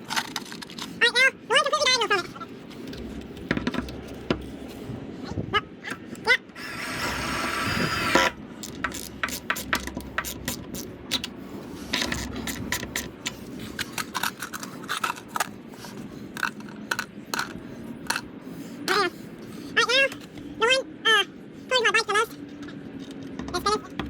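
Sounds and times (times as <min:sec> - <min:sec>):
small power tool running: 0:06.5 - 0:08.4.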